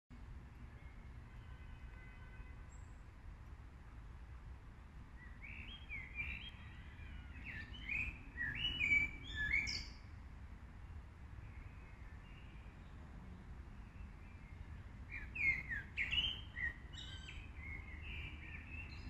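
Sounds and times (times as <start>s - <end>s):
birds chirping: 5.2s - 10.0s, 13.9s - 19.0s.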